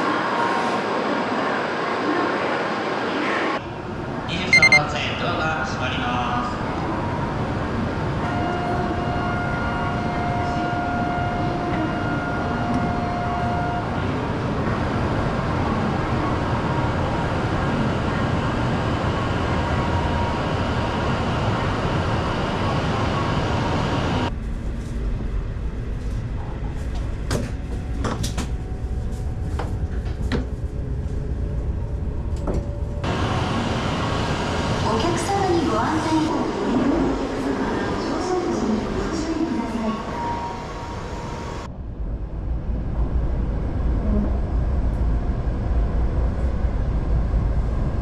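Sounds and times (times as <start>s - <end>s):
held electronic tone: 4.5s - 4.8s
train rushing noise: 5.3s - 48.0s.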